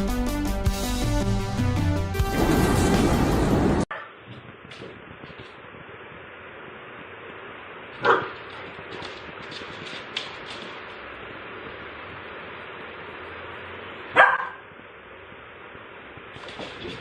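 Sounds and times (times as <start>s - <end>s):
dog barking: 8.0s - 8.4s, 14.1s - 14.7s.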